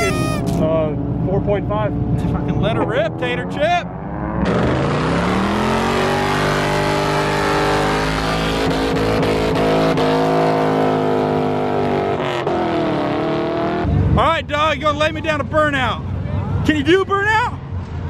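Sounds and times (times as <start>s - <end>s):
car engine revving: 0.8s - 14.0s.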